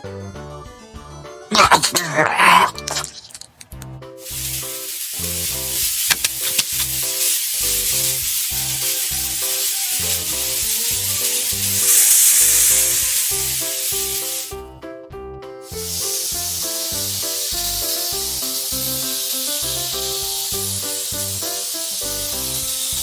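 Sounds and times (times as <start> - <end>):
steady hiss: 4.2 - 14.6, 15.7 - 23.0.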